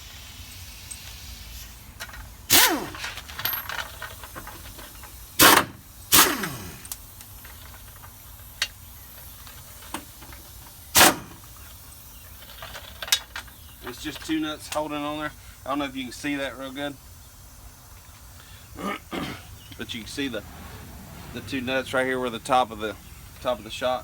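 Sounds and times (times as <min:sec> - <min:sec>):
impact wrench bursts: 0:02.5 - 0:07.2, 0:08.6 - 0:11.6.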